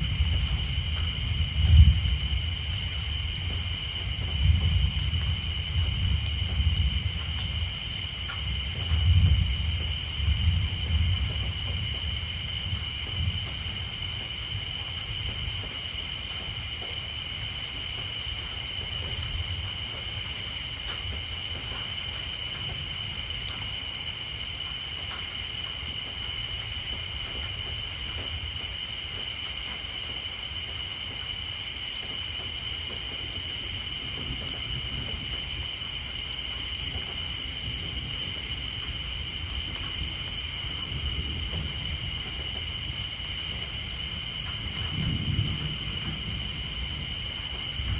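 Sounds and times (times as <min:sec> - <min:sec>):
distant thunder rumbling: 0:00.0 - 0:15.7, 0:36.8 - 0:47.9
rain on a tin roof: 0:00.0 - 0:47.9
tree frogs chorus: 0:00.0 - 0:47.9.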